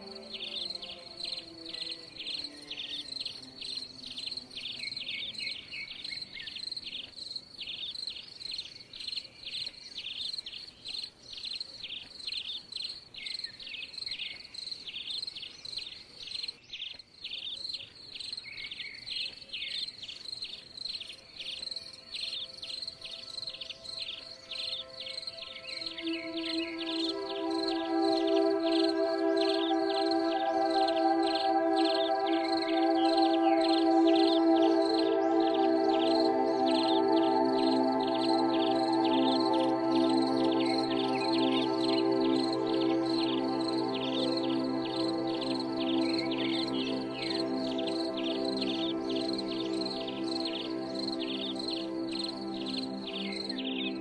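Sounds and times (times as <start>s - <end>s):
insects chirping: 0.0s - 54.0s.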